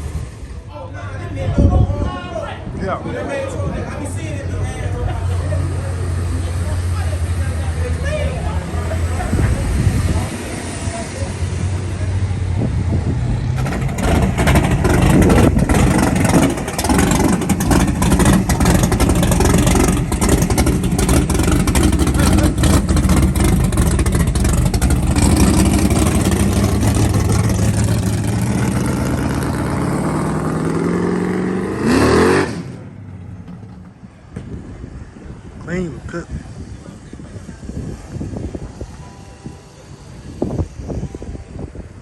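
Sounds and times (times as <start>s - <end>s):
rushing noise: 5.8s - 33.0s
car engine revving hard: 13.6s - 32.8s.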